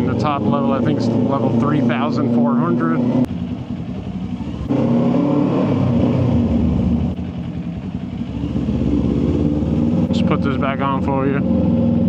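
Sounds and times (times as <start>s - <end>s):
motorcycle engine under throttle: 0.0s - 12.0s.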